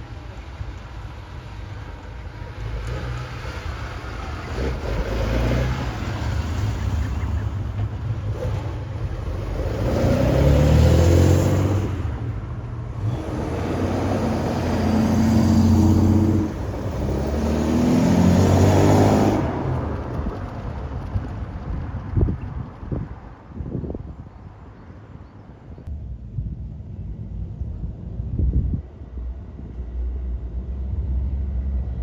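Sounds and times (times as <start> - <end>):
car engines accelerating: 0.0 - 24.6.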